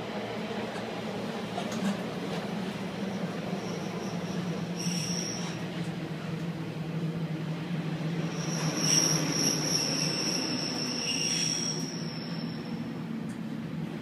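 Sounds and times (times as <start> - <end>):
train carriage running noise: 0.0 - 14.0
high-pitched wheel squeal: 3.6 - 5.6, 8.3 - 12.8.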